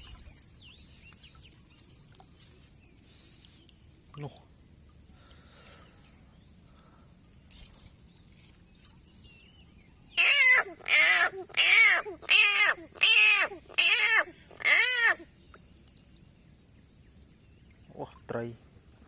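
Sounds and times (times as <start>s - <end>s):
animal calling: 10.2s - 15.3s.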